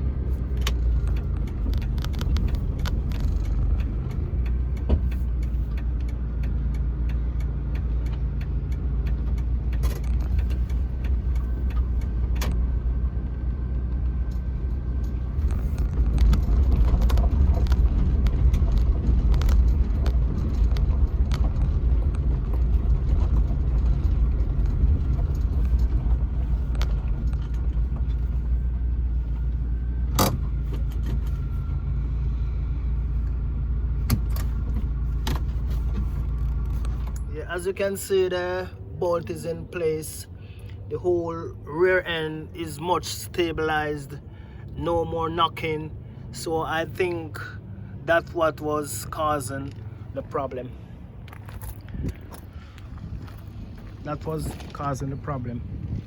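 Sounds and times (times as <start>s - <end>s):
car engine and road rumble: 0.0s - 56.0s
light rattles and clicks: 0.3s - 12.8s, 13.8s - 31.5s, 34.0s - 38.2s.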